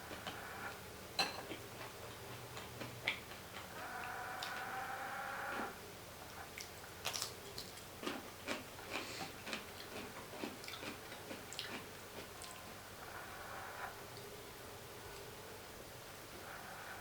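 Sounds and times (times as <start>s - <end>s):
mouth clicks and crunches: 6.6s - 12.7s
person chewing crunchy food: 6.6s - 12.8s.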